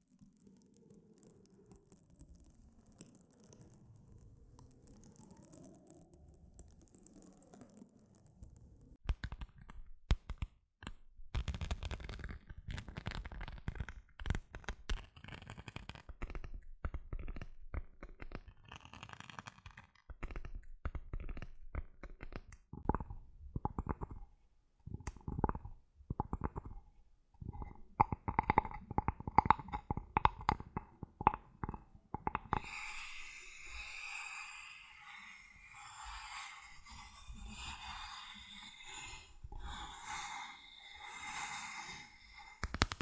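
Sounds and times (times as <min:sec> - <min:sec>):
tapping and scratching on objects: 0:09.1 - 0:34.0, 0:42.3 - 0:43.0.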